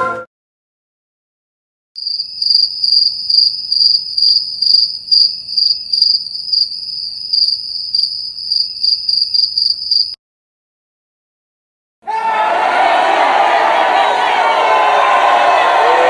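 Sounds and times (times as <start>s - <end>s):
crickets chirping: 2.0s - 10.2s.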